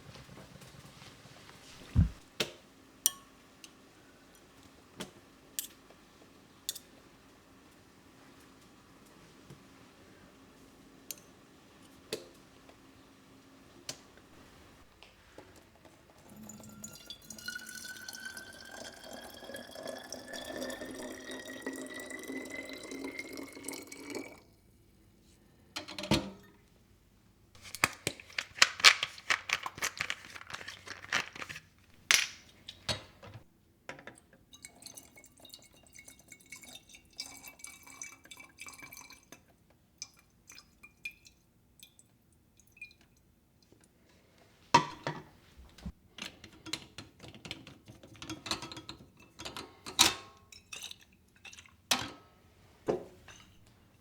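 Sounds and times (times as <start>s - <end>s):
dishes knocking and clinking: 1.8s - 2.2s, 44.8s - 50.3s, 52.8s - 53.7s
tap water filling container: 15.8s - 24.5s.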